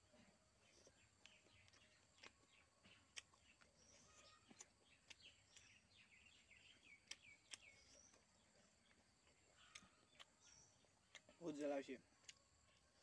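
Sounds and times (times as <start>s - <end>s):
chewing and mouth clicks: 0.0s - 13.0s
faint birdsong chirps: 0.0s - 13.0s.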